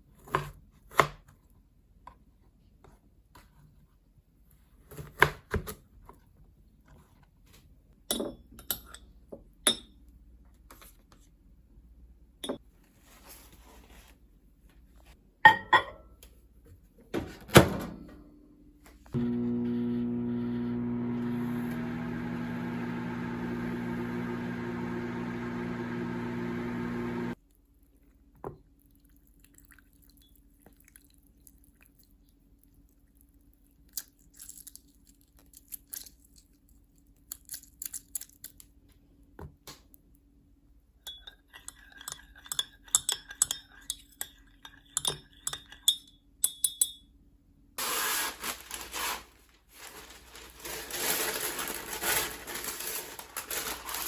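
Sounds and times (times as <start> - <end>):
microwave oven humming: 19.2 - 27.4.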